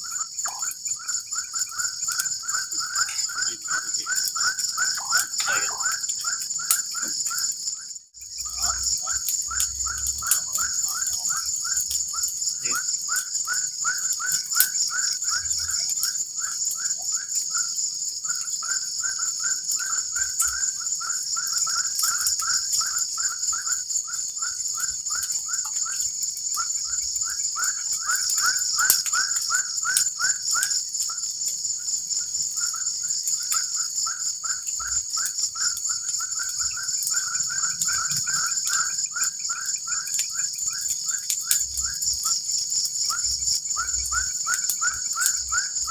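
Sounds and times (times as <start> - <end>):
small animal chirping calls: 0.0 - 15.1
insects trilling: 0.0 - 45.9.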